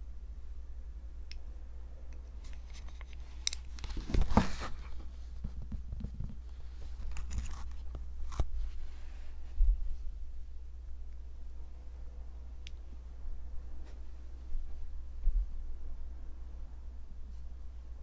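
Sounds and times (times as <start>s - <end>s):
low steady hum: 0.0s - 18.0s
tearing crinkling rasp: 6.9s - 8.5s.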